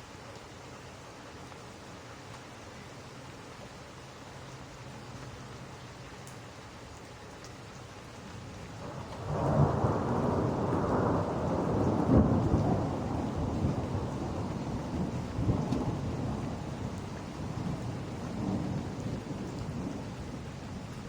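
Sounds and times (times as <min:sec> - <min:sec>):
steady rain: 0:00.0 - 0:21.0
thunder rumbling: 0:08.8 - 0:21.0.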